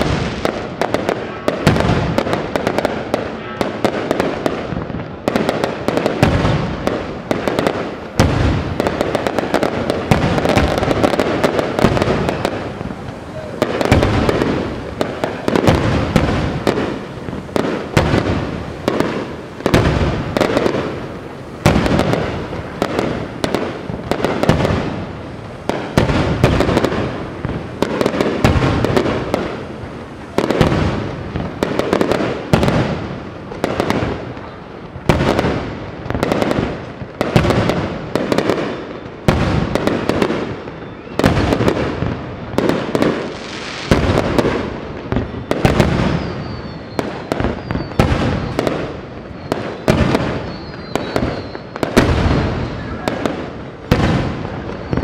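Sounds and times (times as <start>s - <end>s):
firework shells bursting: 0.0s - 38.5s
loud firework bangs: 0.0s - 55.0s.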